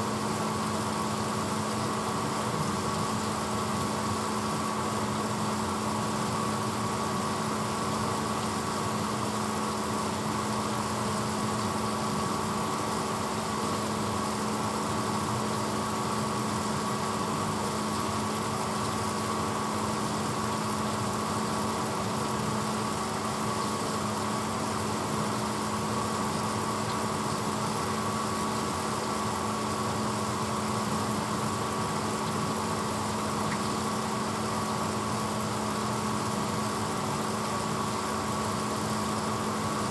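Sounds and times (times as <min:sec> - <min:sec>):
dishwasher humming: 0:00.0 - 0:05.1, 0:15.0 - 0:39.9.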